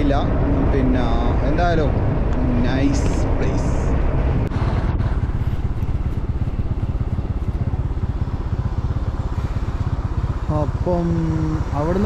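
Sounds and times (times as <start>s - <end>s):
wind rumbling on microphone: 0.0s - 12.0s
motor scooter running: 4.5s - 12.0s.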